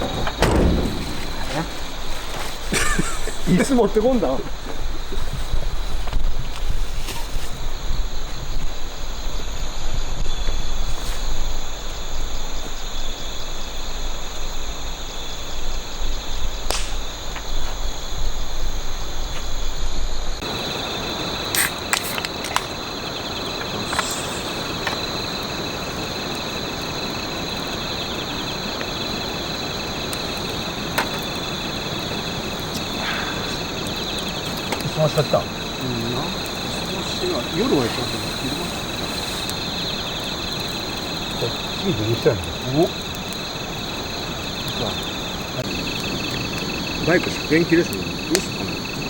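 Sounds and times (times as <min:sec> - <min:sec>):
wind rumbling on microphone: 0:00.0 - 0:14.8
crickets chirping: 0:00.0 - 0:49.0.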